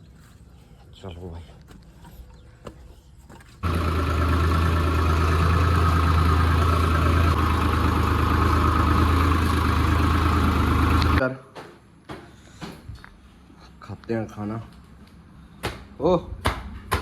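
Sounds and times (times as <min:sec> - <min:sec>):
tractor diesel engine running: 0:03.6 - 0:11.2.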